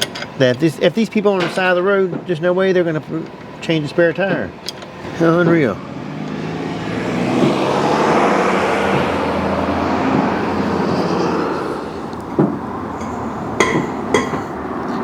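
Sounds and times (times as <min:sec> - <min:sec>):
impact wrench hammering: 0:12.4 - 0:14.5.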